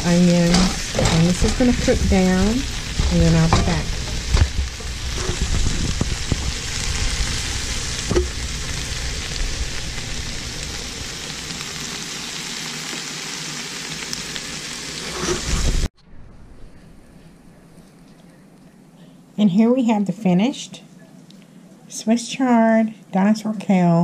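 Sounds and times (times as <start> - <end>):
greens sizzling in a skillet: 0.0 - 15.9.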